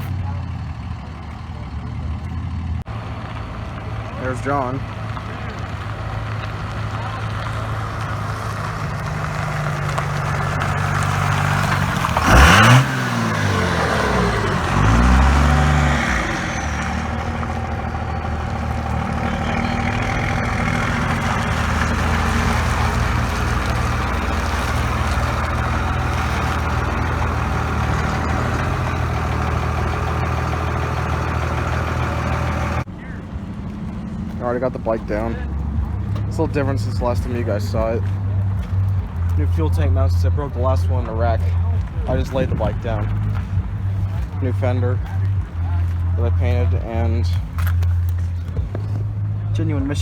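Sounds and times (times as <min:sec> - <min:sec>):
car engine idling and revving: 0:00.0 - 0:50.0.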